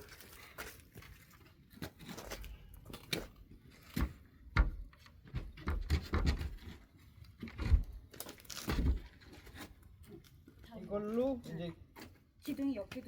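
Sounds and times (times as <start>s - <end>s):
wooden boards knocking and scraping: 4.0s - 6.8s.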